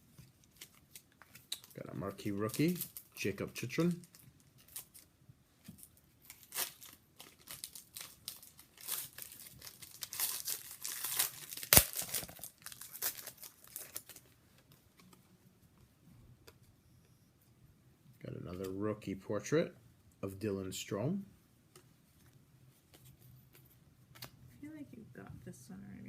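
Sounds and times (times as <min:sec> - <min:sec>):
cards and packaging rustling: 0:00.0 - 0:15.2.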